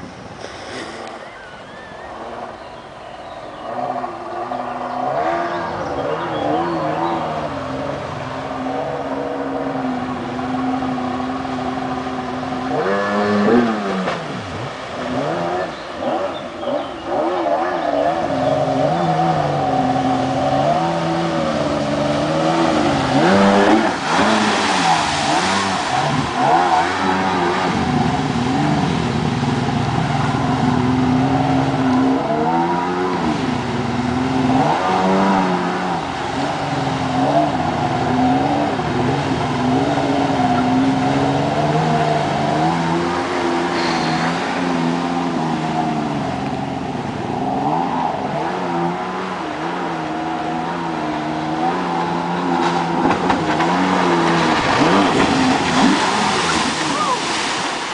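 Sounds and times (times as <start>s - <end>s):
jet ski engine revving: 3.4s - 57.9s.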